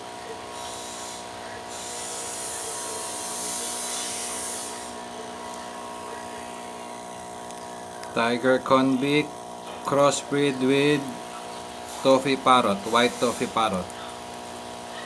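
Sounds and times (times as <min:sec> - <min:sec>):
hiss: 0:00.5 - 0:05.0, 0:11.8 - 0:14.1
electric motor buzzing: 0:00.6 - 0:15.0.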